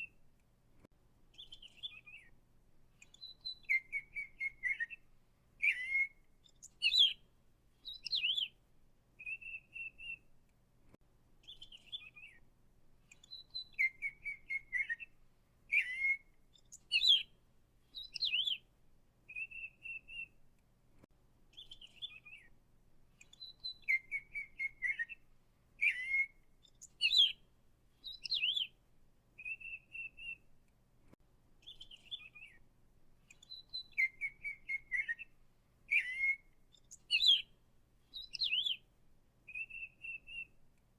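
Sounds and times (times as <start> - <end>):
songbird whistling and trilling: 1.3 - 2.3, 3.0 - 7.2, 7.8 - 8.6, 9.2 - 10.3, 11.4 - 12.4, 13.1 - 17.3, 17.9 - 18.6, 19.3 - 20.4, 21.5 - 22.5, 23.2 - 25.2, 25.8 - 27.4, 28.0 - 28.8, 29.4 - 30.4, 31.6 - 32.6, 33.3 - 37.5, 38.1 - 38.9, 39.5 - 40.6.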